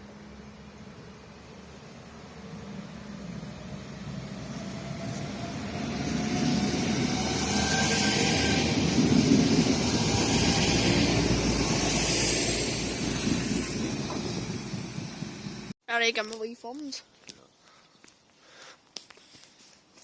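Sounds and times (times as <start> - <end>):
diesel train passing: 0.0 - 15.8.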